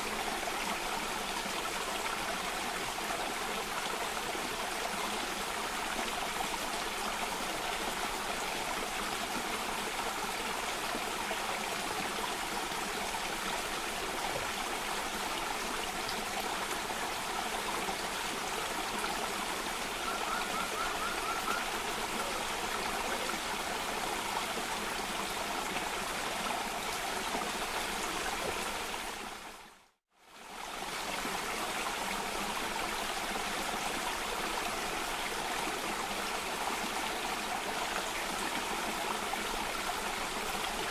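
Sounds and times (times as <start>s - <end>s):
water rushing over a cascade: 0.0s - 29.6s.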